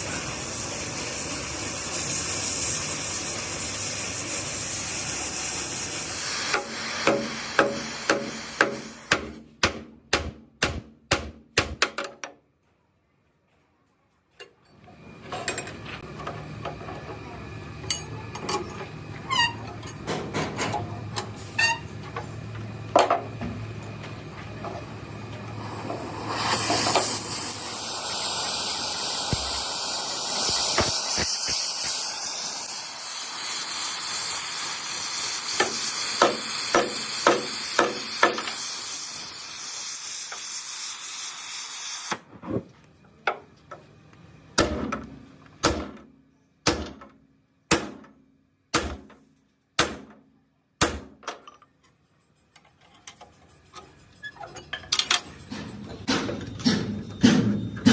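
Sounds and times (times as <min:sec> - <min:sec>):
escaping air hiss: 0:00.0 - 0:09.2, 0:25.6 - 0:42.1.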